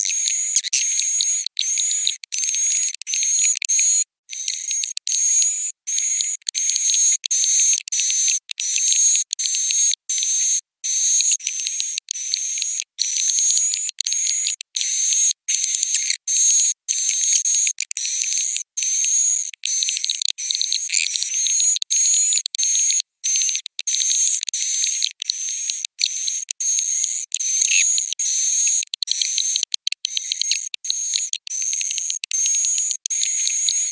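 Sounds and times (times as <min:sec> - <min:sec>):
swiftlet twittering chirps: 0:00.0 - 0:03.3, 0:27.0 - 0:28.8
swiftlets twittering and chirping: 0:00.0 - 0:03.6, 0:18.0 - 0:22.4, 0:23.3 - 0:33.9.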